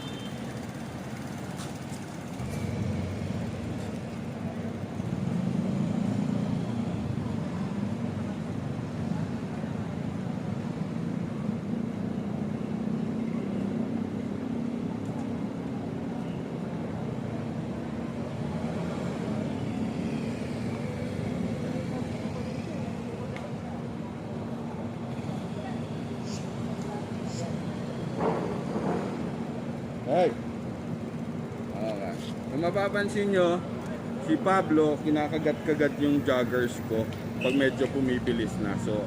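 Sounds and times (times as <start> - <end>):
bicycle rolling on concrete: 0.1 - 6.6, 26.6 - 39.0.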